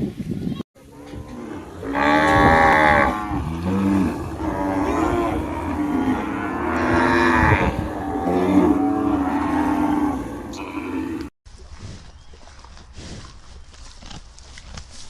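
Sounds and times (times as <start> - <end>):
cattle mooing: 0.8 - 11.3.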